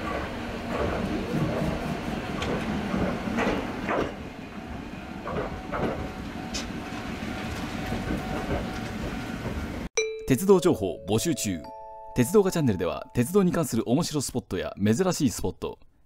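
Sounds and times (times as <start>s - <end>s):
electric train rumbling: 0.0s - 9.9s.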